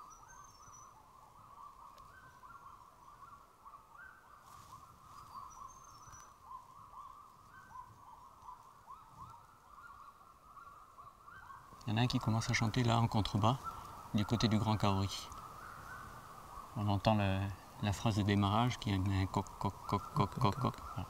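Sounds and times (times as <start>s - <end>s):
distant bird calls: 0.0s - 21.0s.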